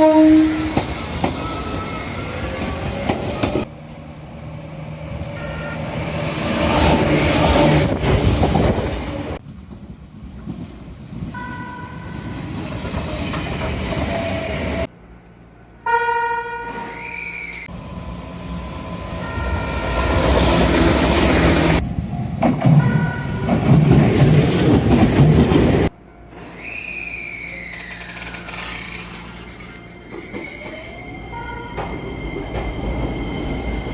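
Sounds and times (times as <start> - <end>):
train horn blasts: 0.0 - 0.8, 5.2 - 6.2, 15.8 - 17.6
trains rumbling and clattering: 0.0 - 15.9, 16.6 - 26.8, 27.4 - 33.9.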